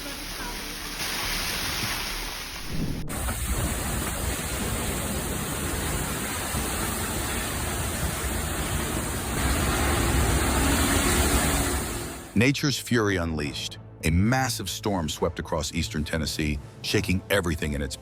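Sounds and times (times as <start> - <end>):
heavy rain: 0.0 - 12.4.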